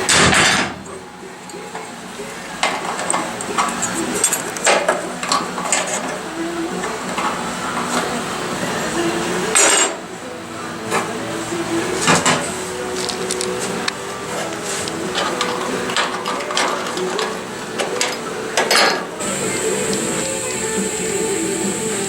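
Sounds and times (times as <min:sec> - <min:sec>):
steady hum: 0:00.0 - 0:22.0
loud noisy bursts: 0:02.0 - 0:22.0
metal clinking and tapping: 0:13.0 - 0:19.1.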